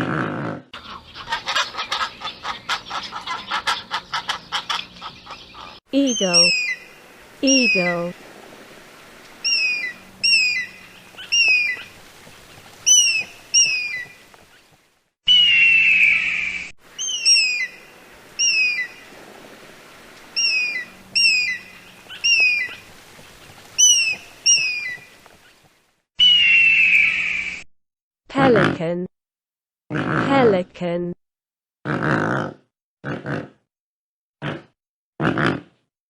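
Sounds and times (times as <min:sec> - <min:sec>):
eagle chirping: 0:00.8 - 0:08.1, 0:09.3 - 0:14.2, 0:17.0 - 0:19.0, 0:20.4 - 0:25.1, 0:26.2 - 0:27.4.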